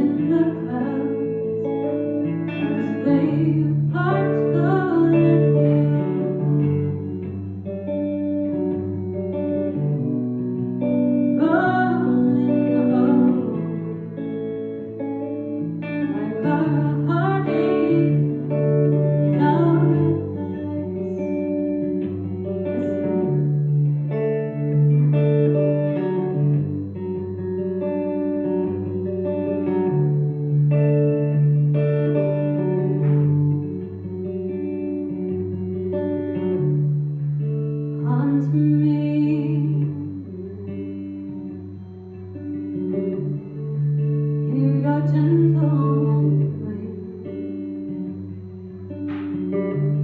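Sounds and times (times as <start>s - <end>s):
live band with guitar: 0.0s - 50.0s
low bass notes: 48.5s - 50.0s.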